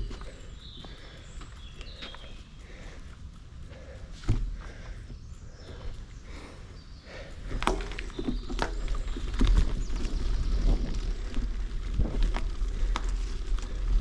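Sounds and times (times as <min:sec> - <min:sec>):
bicycle rattling over rough trail: 0:00.0 - 0:14.0
wind rumble on microphone: 0:07.5 - 0:14.0.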